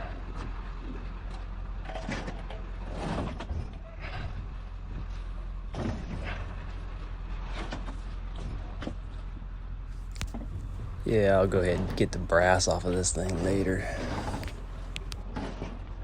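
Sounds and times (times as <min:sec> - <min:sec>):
steady low hum: 0:01.2 - 0:16.0
metal scraping and clunking: 0:10.0 - 0:15.8.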